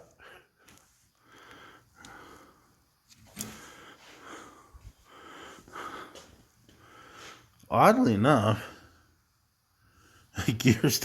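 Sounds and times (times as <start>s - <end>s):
breathing and sniffing: 0.0s - 7.6s.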